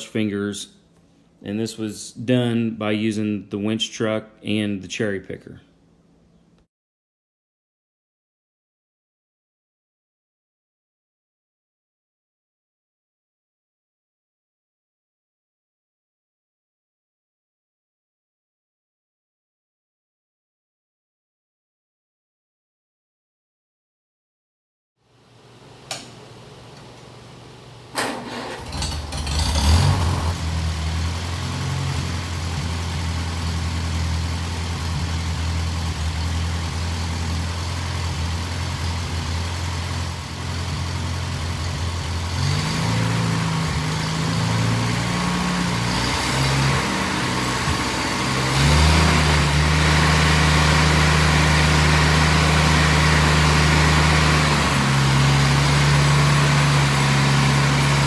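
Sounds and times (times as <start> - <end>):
tractor engine starting and running: 27.9 - 58.0.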